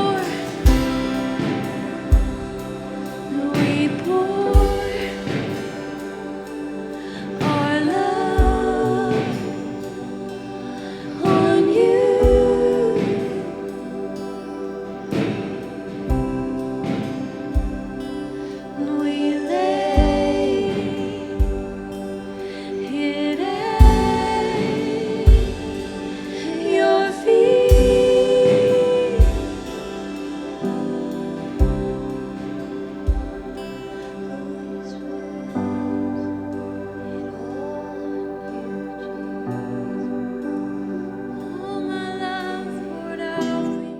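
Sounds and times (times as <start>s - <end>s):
live band playing slow song: 0.0s - 34.3s
person singing long notes: 0.0s - 43.9s
sustained keyboard chords: 0.0s - 43.9s.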